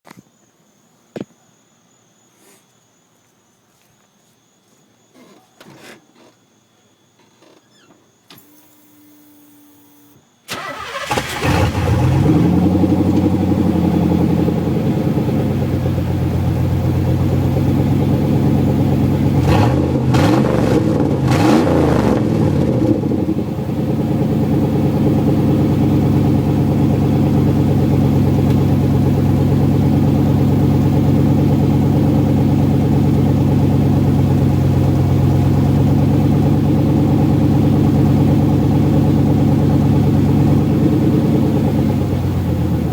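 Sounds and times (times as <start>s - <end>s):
car engine revving: 10.5s - 42.9s
car engine starting and idling: 10.5s - 42.9s.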